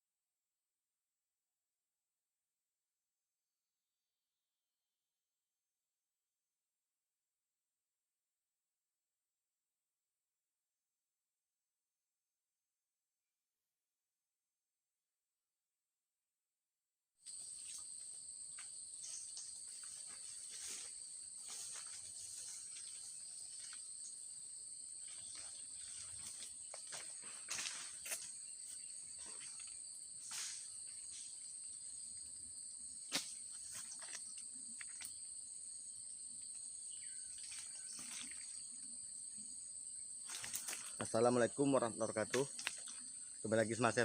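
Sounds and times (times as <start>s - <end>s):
insect drone: 17.3s - 44.0s.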